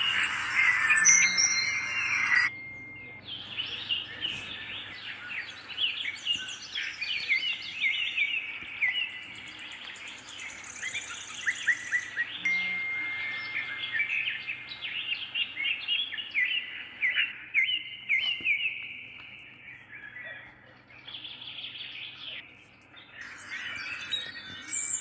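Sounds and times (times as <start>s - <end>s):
hissing with whistle-like tone: 0.0s - 2.5s
birds chirping: 0.0s - 25.0s.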